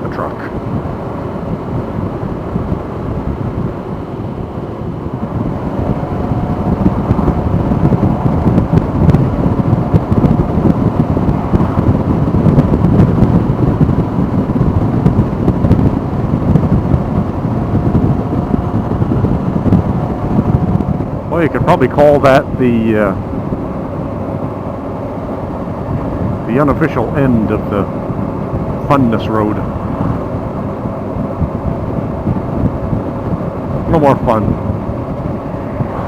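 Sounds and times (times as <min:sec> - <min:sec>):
wind rush on microphone: 0:00.0 - 0:36.0
motorcycle engine: 0:02.2 - 0:21.5.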